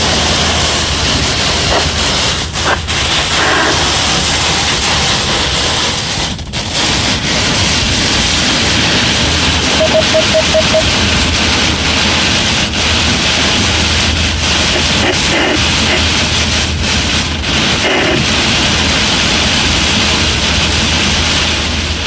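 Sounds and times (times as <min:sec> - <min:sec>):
heavy rain downpour: 0:00.0 - 0:22.0
wind: 0:00.0 - 0:22.0
short beeps: 0:09.7 - 0:10.8.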